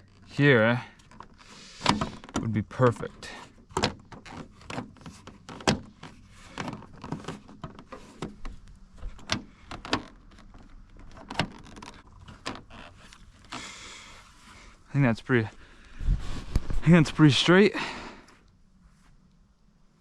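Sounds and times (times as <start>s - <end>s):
plastic flap clicking and rustling: 3.6s - 13.6s.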